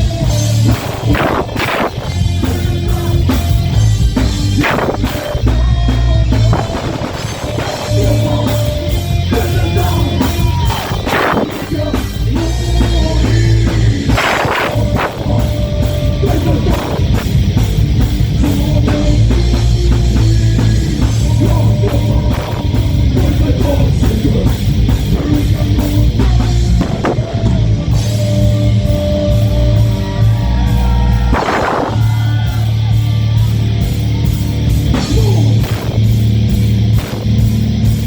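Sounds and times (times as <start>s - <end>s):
person singing: 0.0s - 17.4s, 18.2s - 33.1s, 34.9s - 35.7s
heavy metal band playing: 0.0s - 38.0s.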